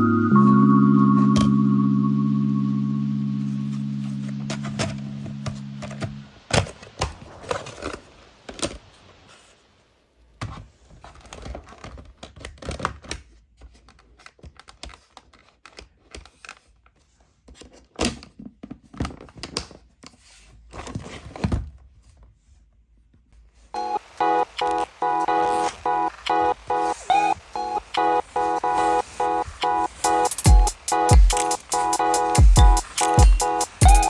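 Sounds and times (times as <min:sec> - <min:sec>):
plucky beeping music: 0:00.0 - 0:06.2, 0:23.8 - 0:34.0.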